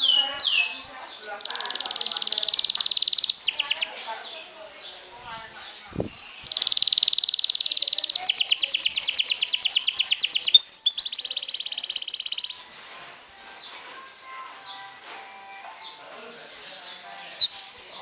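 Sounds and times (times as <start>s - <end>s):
canary singing trills: 0.0s - 12.7s, 13.6s - 18.0s
faint bird twittering: 0.0s - 12.7s.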